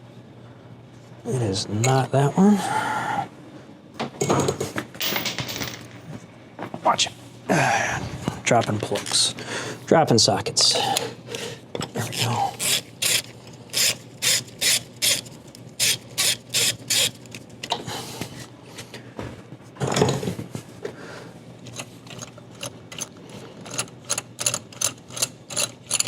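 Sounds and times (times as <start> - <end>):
hand ratchet clicking: 12.2 - 17.4, 22.9 - 26.0.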